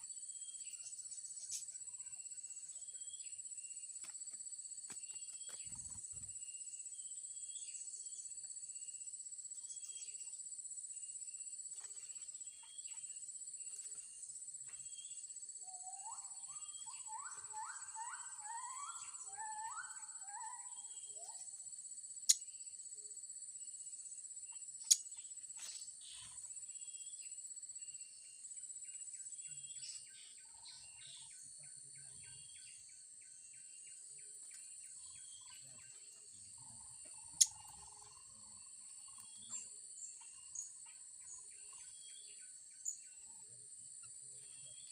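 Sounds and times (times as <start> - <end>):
high-pitched insect drone: 15.0 - 44.9.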